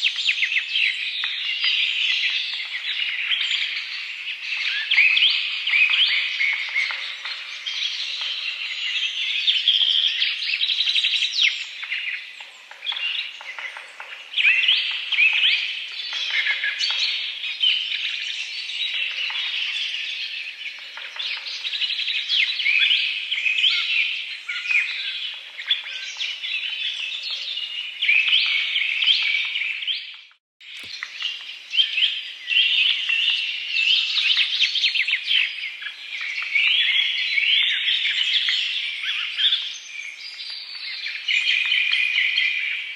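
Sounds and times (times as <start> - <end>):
small birds chirping chorus: 0.0 - 42.9
click: 30.8 - 31.2.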